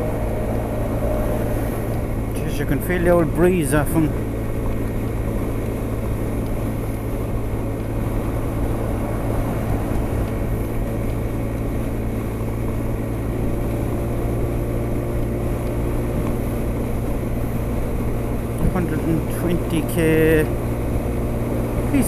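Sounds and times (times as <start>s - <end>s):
wind rush: 0.0s - 3.0s, 6.6s - 14.1s.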